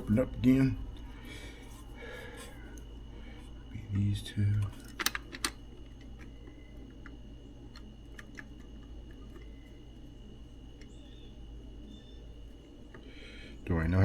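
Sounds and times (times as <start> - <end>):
low hum: 0.0 - 14.0
soldering tools clicking: 3.9 - 9.7.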